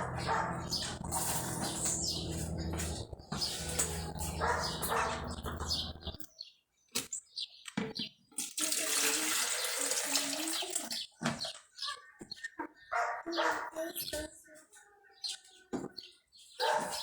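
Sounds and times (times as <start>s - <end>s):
steady low hum: 0.0s - 6.2s
tap water running into sink: 8.4s - 11.0s.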